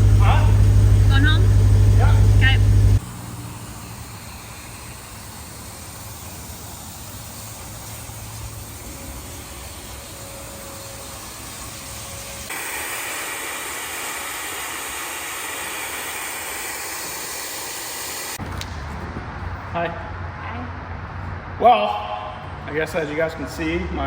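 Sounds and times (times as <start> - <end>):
car road and engine noise: 0.0 - 5.9.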